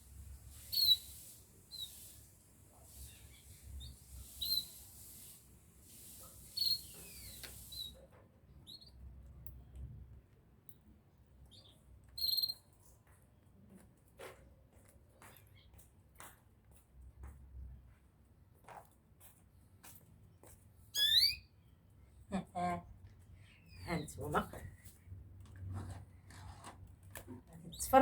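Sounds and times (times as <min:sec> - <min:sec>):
faint steady hiss: 0:00.0 - 0:08.0
small birds chirping: 0:00.5 - 0:09.7, 0:11.4 - 0:13.0, 0:15.2 - 0:15.9, 0:20.9 - 0:22.2, 0:23.0 - 0:24.8, 0:27.5 - 0:28.0.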